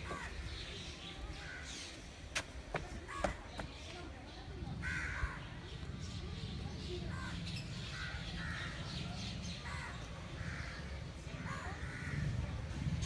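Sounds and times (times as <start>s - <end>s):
steady low rumble: 4.6s - 13.0s.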